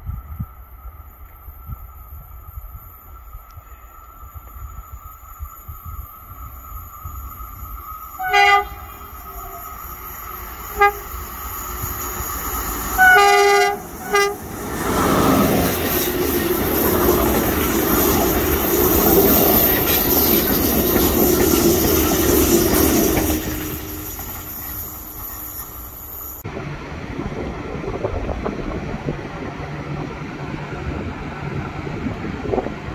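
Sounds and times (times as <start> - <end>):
train wheels rolling on rails: 0.0 - 32.9
train horn: 8.2 - 9.8, 10.6 - 11.2, 13.0 - 14.6.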